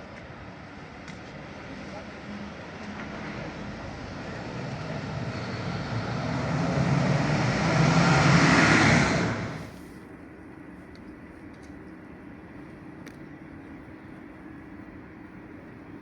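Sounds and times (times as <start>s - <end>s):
vehicle passing by: 4.3s - 9.7s.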